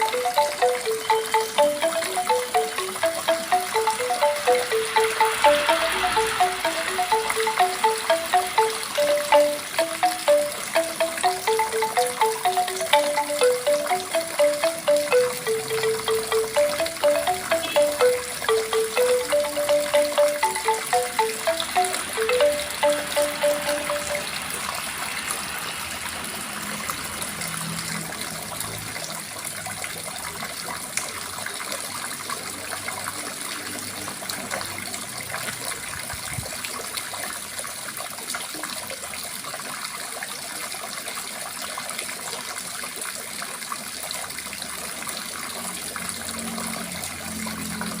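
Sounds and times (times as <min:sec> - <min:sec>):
metallophone note ringing: 0:00.0 - 0:25.2.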